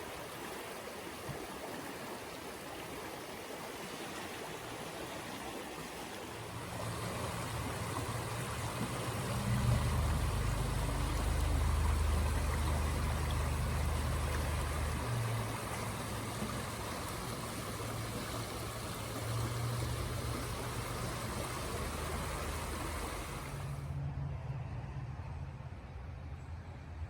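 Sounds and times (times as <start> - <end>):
river water rushing over rocks: 0.0 - 23.9
low hum: 6.5 - 24.5.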